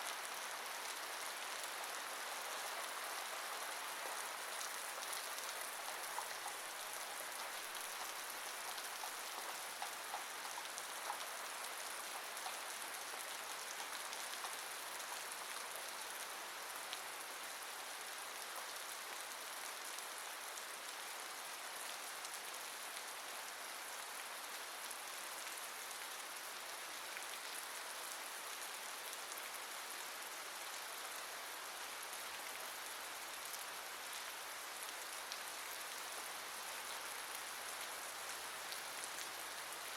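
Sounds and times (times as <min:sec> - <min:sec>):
steady rain: 0:00.0 - 0:39.9
raindrops ticking: 0:05.0 - 0:12.6.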